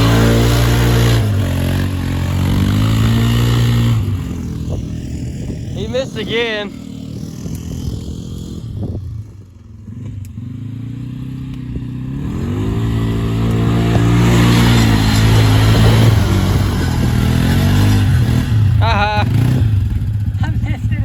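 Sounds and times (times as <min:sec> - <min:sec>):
tyres churning through mud: 0:00.0 - 0:04.8, 0:12.2 - 0:19.6
atv engine revving: 0:00.0 - 0:21.0.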